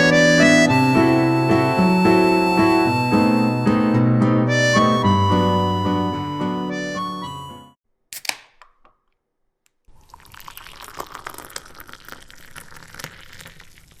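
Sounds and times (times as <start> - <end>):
sharp clicks: 8.2 - 9.2.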